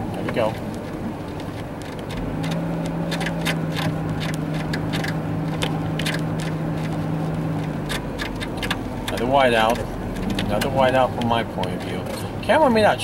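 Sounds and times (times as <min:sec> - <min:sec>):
car engine hum: 0:00.0 - 0:13.0
sharp ticks: 0:07.6 - 0:11.8.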